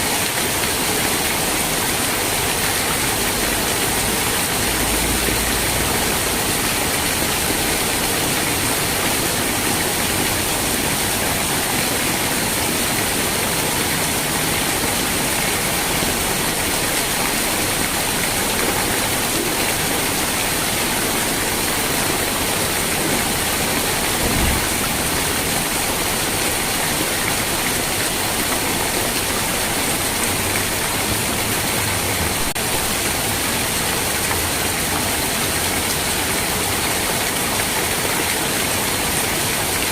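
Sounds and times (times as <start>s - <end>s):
heavy rain: 0.0s - 39.9s
low thump: 24.2s - 25.1s.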